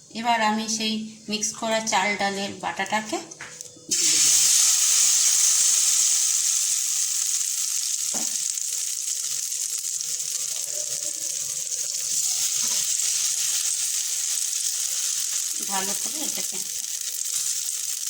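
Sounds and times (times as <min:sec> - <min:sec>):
batter sizzling in a pan: 0:03.9 - 0:18.0.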